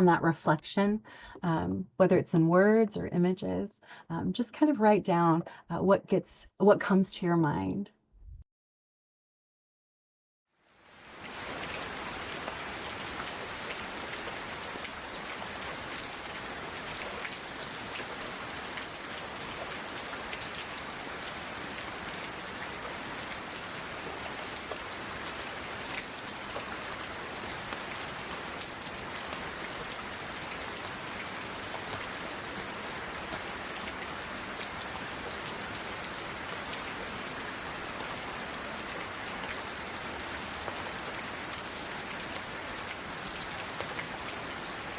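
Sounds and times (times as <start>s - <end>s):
steady rain falling: 10.6s - 44.9s
raindrops ticking: 11.3s - 37.1s.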